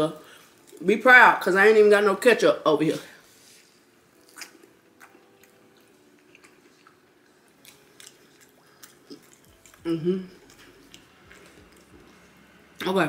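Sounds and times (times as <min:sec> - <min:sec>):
wet chewing and mouth clicks: 0:04.2 - 0:12.2.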